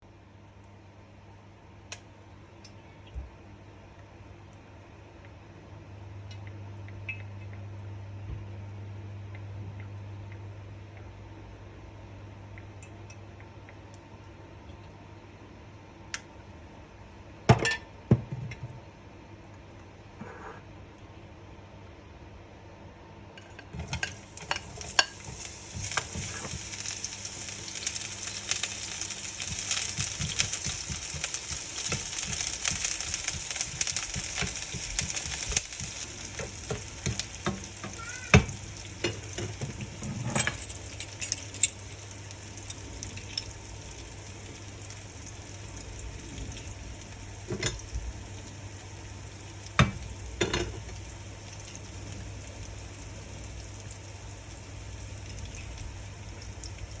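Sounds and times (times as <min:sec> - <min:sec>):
food sizzling in hot oil: 0:23.7 - 0:57.0.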